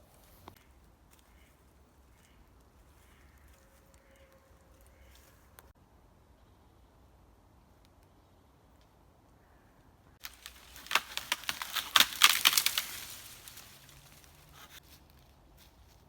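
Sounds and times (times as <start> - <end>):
dry twigs and leaves crunching: 10.2 - 16.0.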